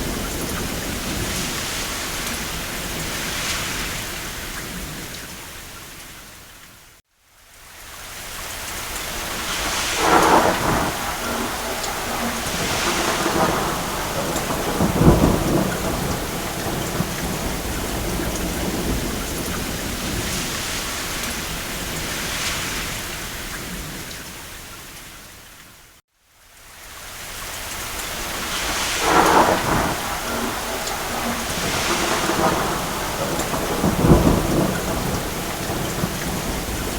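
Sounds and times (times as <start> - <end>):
thunder rolling: 0.0 - 5.1, 9.1 - 24.1, 28.0 - 36.9
rain on a roof: 0.0 - 36.9.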